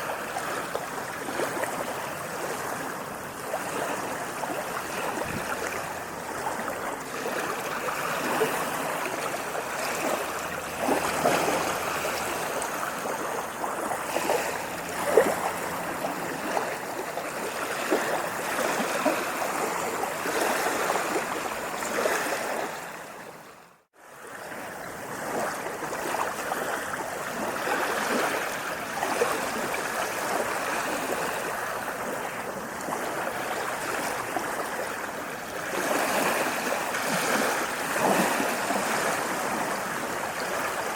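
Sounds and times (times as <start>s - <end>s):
water washing and splashing: 0.0s - 22.7s.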